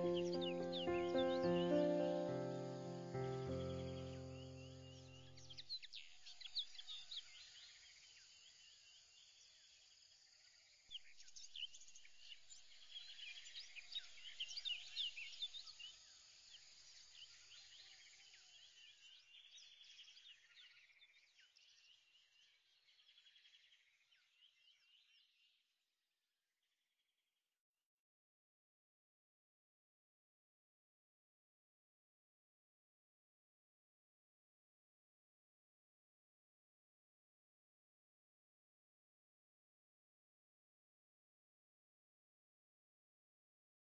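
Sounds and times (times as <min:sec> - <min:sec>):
birds chirping and trilling: 0:00.0 - 0:07.8.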